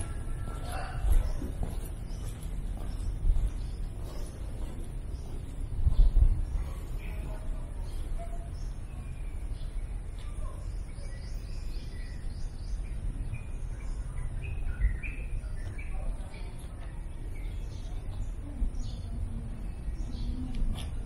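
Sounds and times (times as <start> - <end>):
small birds chirping: 0.0 - 21.0
steady low rumble: 0.0 - 21.0.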